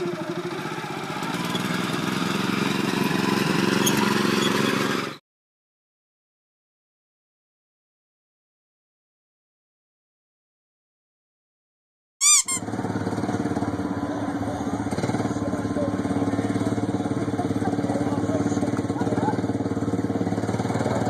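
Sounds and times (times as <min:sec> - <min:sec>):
go-kart engine running: 0:00.0 - 0:05.2, 0:12.5 - 0:21.0
sharp chirp: 0:12.2 - 0:12.6.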